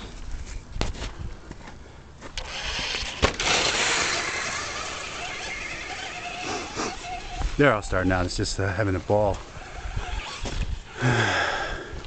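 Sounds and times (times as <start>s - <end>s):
tyres on dirt: 0.0s - 12.0s
electric motor whirring: 2.4s - 11.0s.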